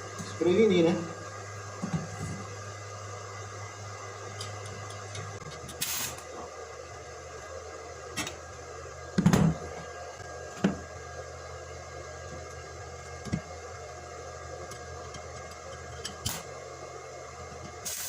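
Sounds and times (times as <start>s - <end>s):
electrical hum: 0.0s - 18.0s
short hiss: 5.8s - 6.2s.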